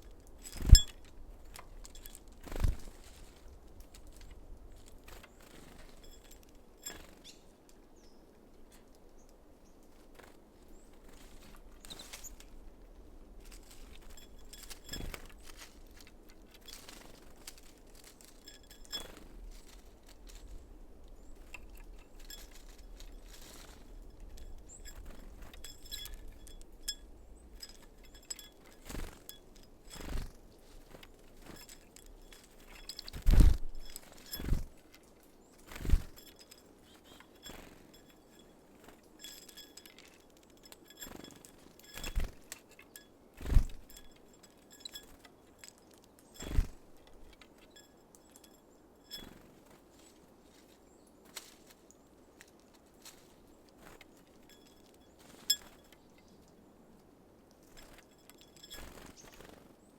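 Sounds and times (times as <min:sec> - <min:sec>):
birds tapping at feeder: 0:00.1 - 0:10.3, 0:13.4 - 0:49.5, 0:53.8 - 0:56.4, 0:57.6 - 0:59.6.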